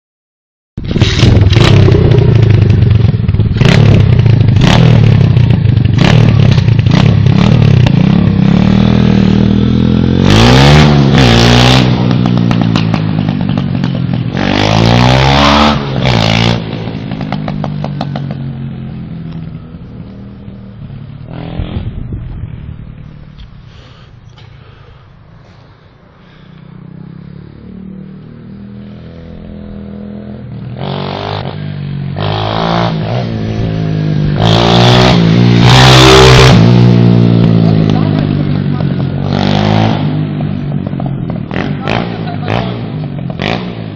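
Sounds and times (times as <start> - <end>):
motorbike engine revving: 0.8 - 22.7, 25.6 - 43.9
sharp clattering knocks: 12.1 - 14.3.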